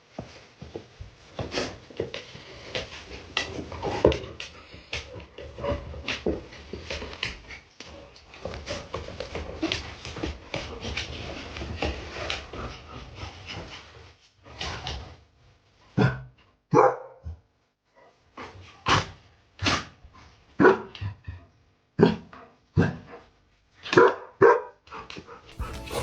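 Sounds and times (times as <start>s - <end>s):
dog barking: 16.7s - 17.3s, 24.0s - 24.8s, 25.6s - 26.0s
rustling: 25.6s - 26.0s.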